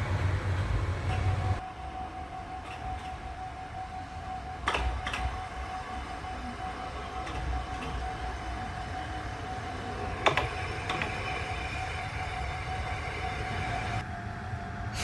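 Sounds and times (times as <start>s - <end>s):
diesel railcar rumble: 0.0s - 15.0s
thin high tone hum: 0.0s - 15.0s
wheel clicks over rail joints: 10.2s - 11.5s.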